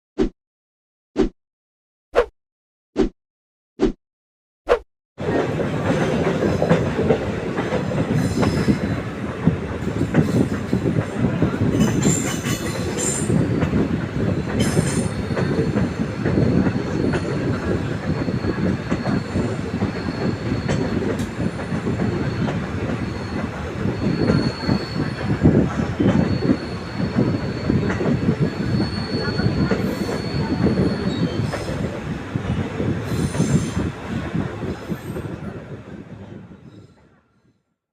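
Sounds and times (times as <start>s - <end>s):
train wheels rumbling and clattering: 5.2s - 36.8s
high wheel squeal: 14.8s - 31.9s.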